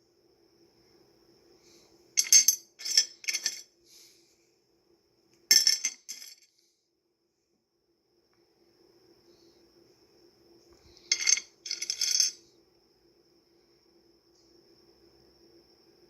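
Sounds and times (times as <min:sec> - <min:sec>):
stones clinking together: 0:11.0 - 0:12.4.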